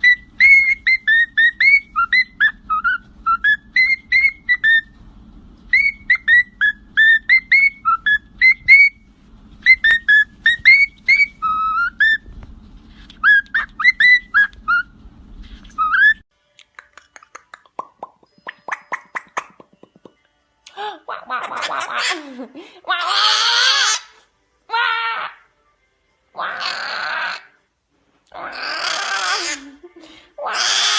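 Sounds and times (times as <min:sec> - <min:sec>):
parrot whistling: 0:00.0 - 0:05.0, 0:05.7 - 0:09.0, 0:09.6 - 0:12.2, 0:13.2 - 0:14.9, 0:15.6 - 0:16.2, 0:18.4 - 0:19.6.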